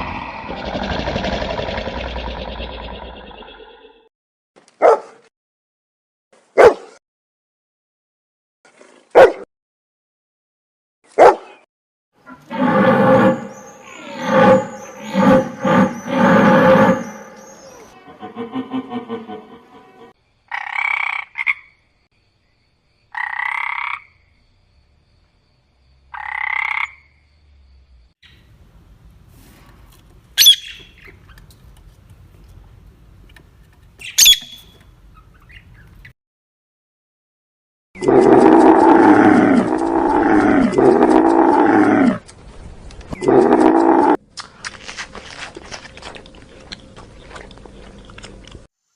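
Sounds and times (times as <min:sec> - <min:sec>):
animal roaring calls: 0:00.0 - 0:03.9, 0:12.3 - 0:20.1, 0:38.0 - 0:42.2, 0:43.2 - 0:44.2
animal calling: 0:12.3 - 0:20.1, 0:30.4 - 0:31.0.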